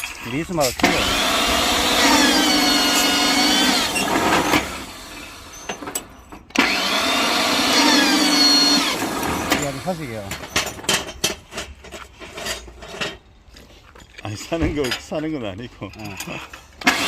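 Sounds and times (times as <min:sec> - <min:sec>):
bending machine motor whining: 0:00.7 - 0:10.9.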